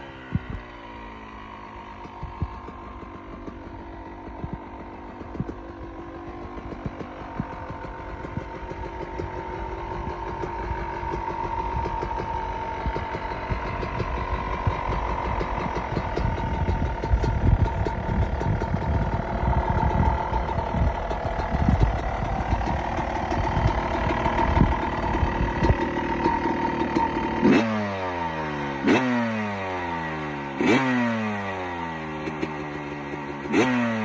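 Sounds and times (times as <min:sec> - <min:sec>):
dirt bike engine running: 0:00.0 - 0:34.0.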